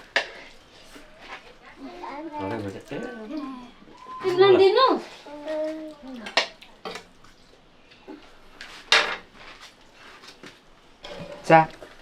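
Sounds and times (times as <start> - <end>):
dishes and utensils clinking: 8.9 - 9.3.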